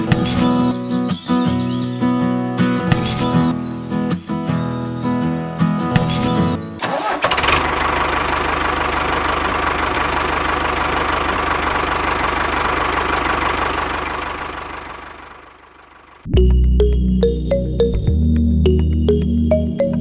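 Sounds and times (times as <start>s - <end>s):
small tractor engine chugging: 6.0s - 16.2s.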